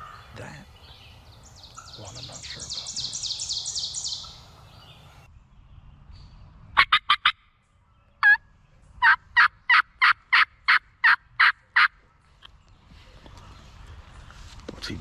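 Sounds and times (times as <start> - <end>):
turkey yelping: 6.8 - 7.4, 9.0 - 11.9.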